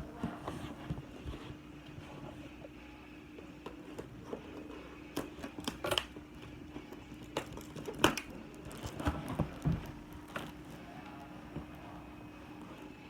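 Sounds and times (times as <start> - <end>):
faint steady hum: 0.0 - 13.0
packaging being handled: 7.2 - 10.9.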